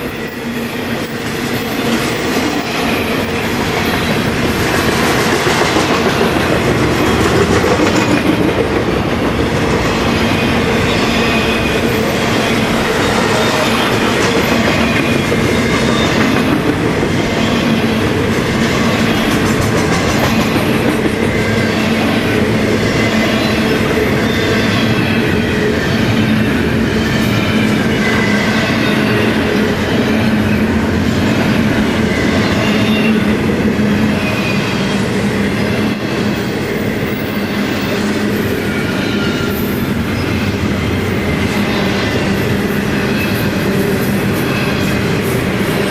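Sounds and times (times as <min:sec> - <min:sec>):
train wheels rumbling on rails: 0:00.0 - 0:45.9
train wheels clicking over track: 0:01.0 - 0:24.8.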